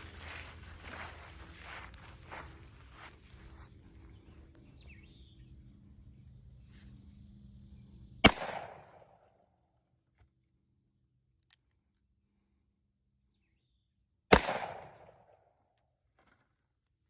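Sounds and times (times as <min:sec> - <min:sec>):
revolver gunshot with echo: 0:08.2 - 0:09.2, 0:14.3 - 0:15.3.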